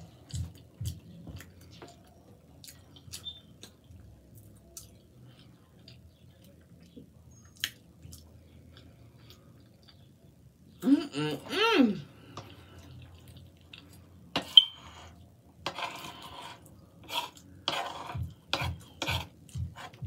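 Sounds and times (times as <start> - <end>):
person chewing food: 0.0 - 10.4, 12.2 - 14.3, 16.6 - 20.0.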